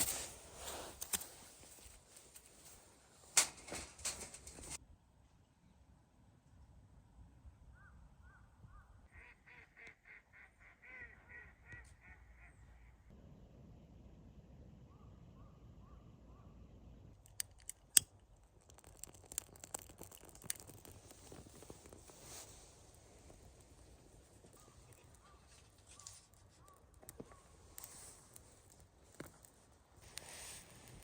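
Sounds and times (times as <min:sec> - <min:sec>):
waterfowl honking: 0:09.1 - 0:12.9.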